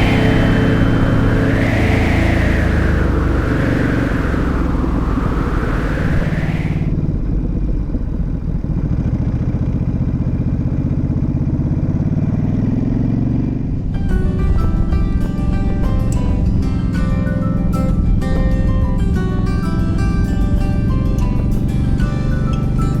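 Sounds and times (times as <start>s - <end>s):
rushing noise: 0.0s - 7.1s.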